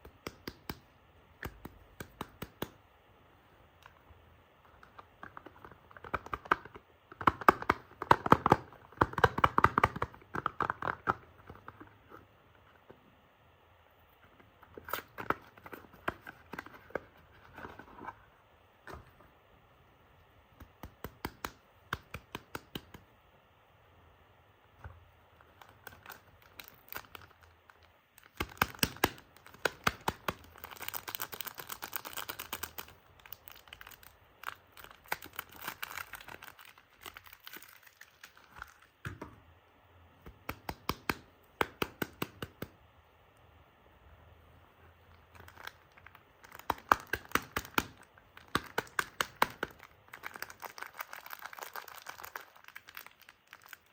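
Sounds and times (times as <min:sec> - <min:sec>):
wrapper crinkling: 0:29.4 - 0:38.9, 0:45.3 - 0:53.9.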